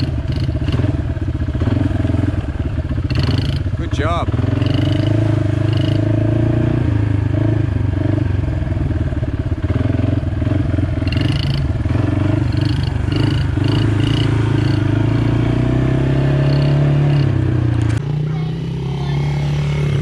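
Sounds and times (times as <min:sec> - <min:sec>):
small motorbike engine running: 0:00.0 - 0:06.3, 0:06.9 - 0:20.0.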